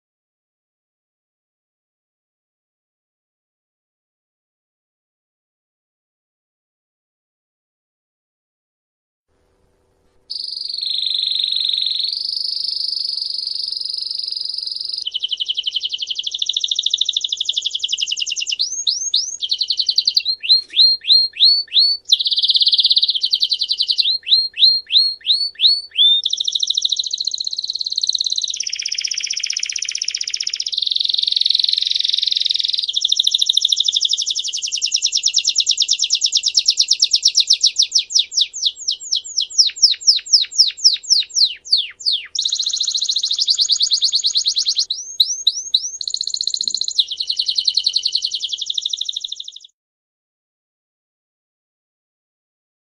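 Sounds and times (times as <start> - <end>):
songbird singing trills: 10.3 - 49.8.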